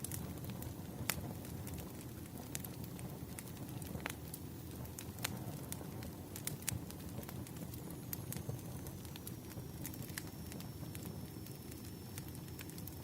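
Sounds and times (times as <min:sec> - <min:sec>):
crackles and pops of burning logs: 0:00.0 - 0:13.0
low rumble of flames: 0:00.0 - 0:13.0
faint thin high whine: 0:06.6 - 0:13.0.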